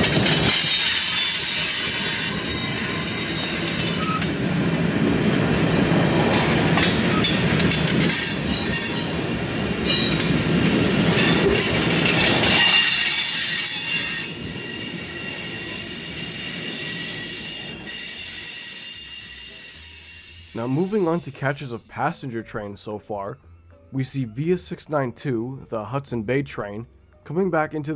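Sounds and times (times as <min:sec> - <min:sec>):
train wheels squealing: 0:00.0 - 0:04.9, 0:05.6 - 0:22.1
low train rumble: 0:00.0 - 0:24.9.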